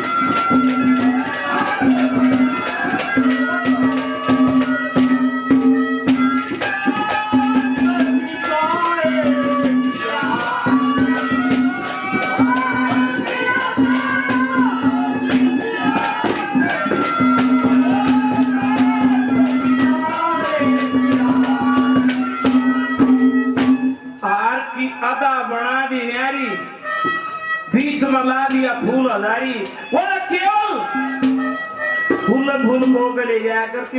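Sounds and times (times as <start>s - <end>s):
hand drum beat: 0.0s - 24.1s, 30.9s - 33.0s
folk melody instrument: 0.0s - 33.9s.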